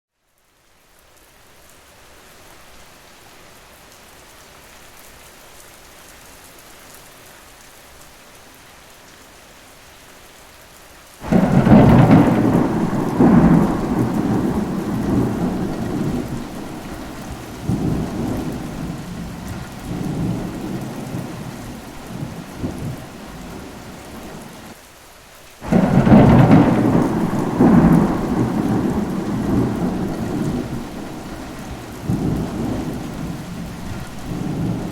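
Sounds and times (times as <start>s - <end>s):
steady rain hiss: 0.1s - 34.9s
thunderclap rumbling: 11.2s - 24.7s, 25.6s - 34.9s.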